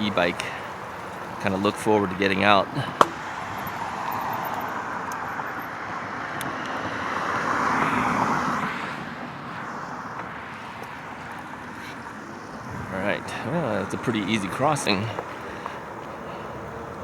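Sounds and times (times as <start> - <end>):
car passing by: 0.0 - 17.0.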